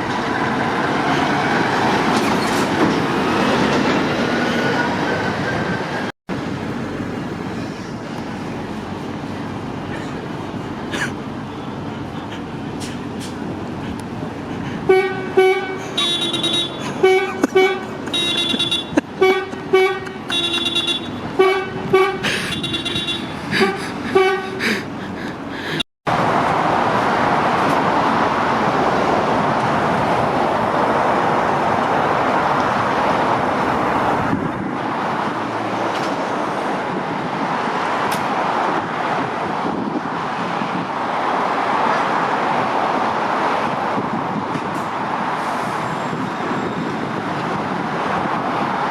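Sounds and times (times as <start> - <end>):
passing motorway traffic: 0.0 - 48.9
lorry horn short toots: 14.9 - 24.6.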